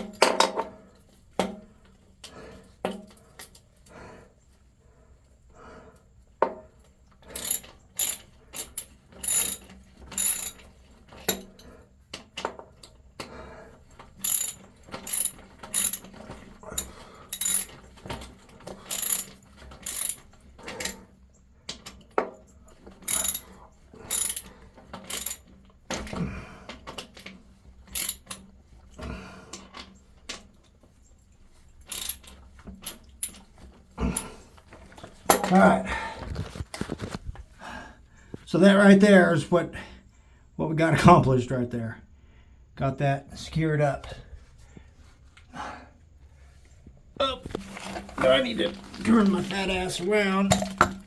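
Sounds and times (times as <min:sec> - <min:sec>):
ratchet wrench clicking: 0:07.3 - 0:10.6, 0:14.2 - 0:16.1, 0:16.7 - 0:17.8, 0:18.8 - 0:21.0, 0:23.0 - 0:24.5, 0:25.1 - 0:25.5, 0:27.9 - 0:28.4, 0:31.9 - 0:33.4.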